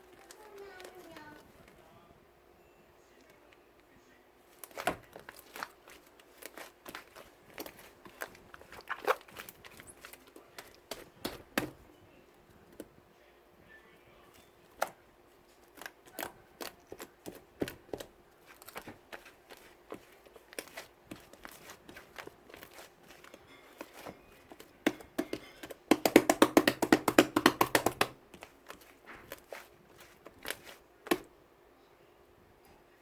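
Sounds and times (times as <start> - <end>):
faint steady hum: 0.0 - 33.0
small objects clicking and tapping: 22.2 - 31.3.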